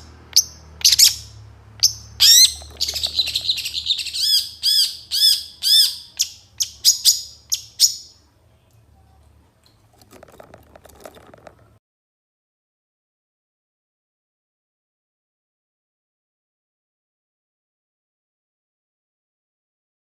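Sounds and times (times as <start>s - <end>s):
bird chirps and whistled song: 0.4s - 8.2s
faint low bird chatter: 2.2s - 11.8s.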